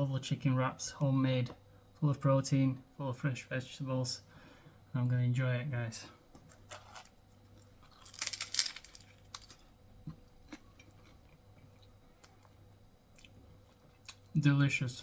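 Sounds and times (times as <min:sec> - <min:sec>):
person chewing food: 0:06.4 - 0:14.3
crunching: 0:06.6 - 0:09.7.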